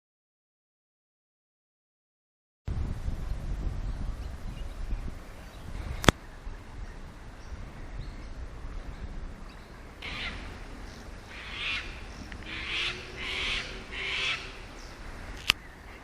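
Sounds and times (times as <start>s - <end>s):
bird screechy calls: 10.0s - 15.0s.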